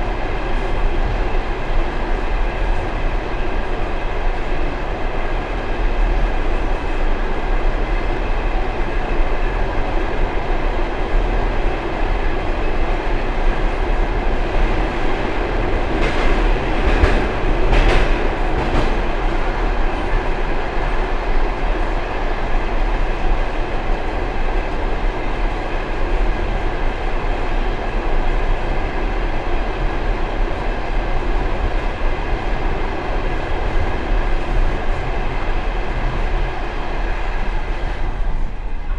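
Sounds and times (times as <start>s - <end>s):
train wheels rumbling on rails: 0.0s - 38.9s
train wheels clacking: 15.8s - 20.2s.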